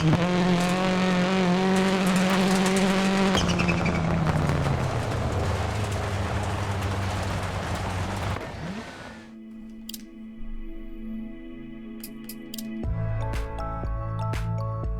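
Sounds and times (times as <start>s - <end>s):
tyre and road noise rumble: 0.0s - 9.4s
car engine slowing down: 0.0s - 9.5s.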